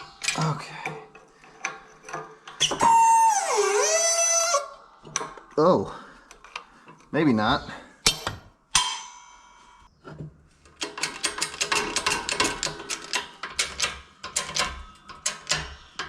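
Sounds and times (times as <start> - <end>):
ringing metallic clang: 8.1 - 9.9.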